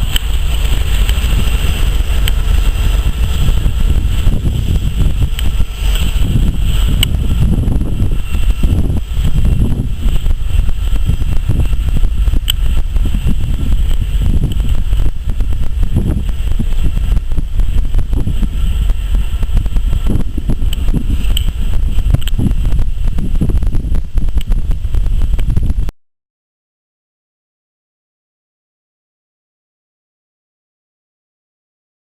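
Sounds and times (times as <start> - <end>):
train wheels rumbling on rail: 0.0 - 25.9
wind on microphone: 0.0 - 25.9.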